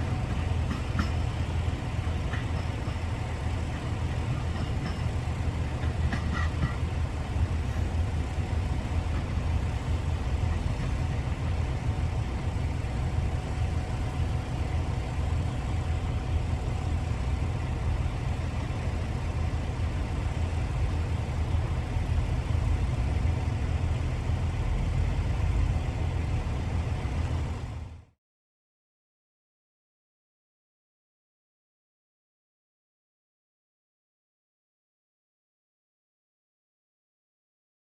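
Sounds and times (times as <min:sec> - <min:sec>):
diesel railcar engine rumble: 0:00.0 - 0:28.2.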